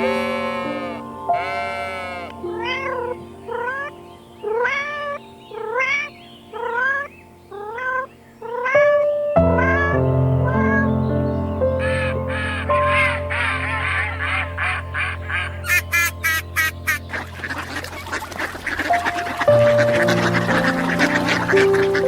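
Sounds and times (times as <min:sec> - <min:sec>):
background music: 0:00.0 - 0:22.0
cat meowing: 0:01.4 - 0:10.9.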